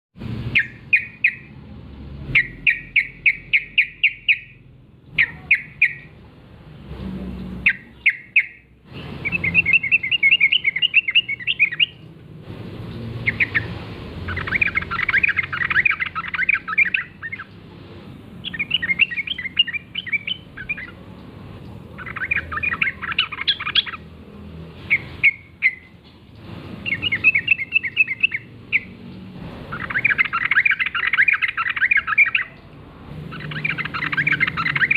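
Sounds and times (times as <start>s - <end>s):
bulbuls chattering: 2.3s - 6.3s, 13.2s - 17.5s, 18.4s - 29.1s, 29.7s - 34.9s.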